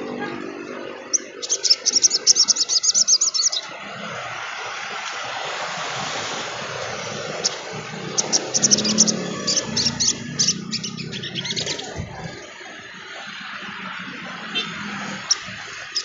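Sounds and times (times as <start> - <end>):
bird singing high sharp chirps: 1.0 - 3.7, 7.3 - 12.0, 15.0 - 16.0.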